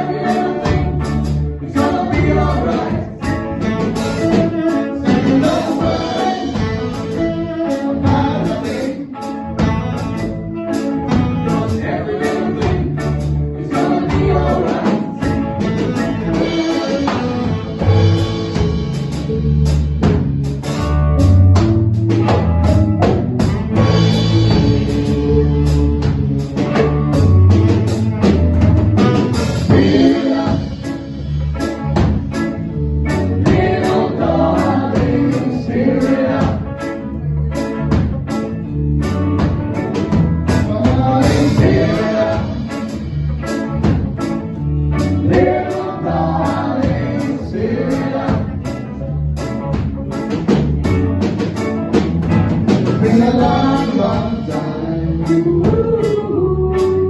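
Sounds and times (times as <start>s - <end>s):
person singing: 0.0s - 10.4s, 11.3s - 17.8s, 23.8s - 26.9s, 29.6s - 31.1s, 40.5s - 43.0s, 45.0s - 49.0s, 53.0s - 57.0s
reggae band playing: 0.0s - 57.0s.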